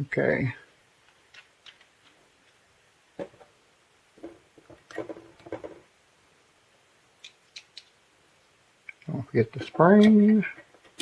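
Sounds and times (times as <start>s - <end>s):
plastic and metal parts knocking: 4.2s - 5.9s.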